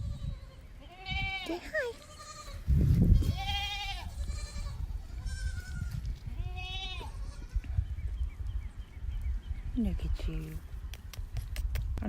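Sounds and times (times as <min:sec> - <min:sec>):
goat kid bleating: 0:00.0 - 0:07.7.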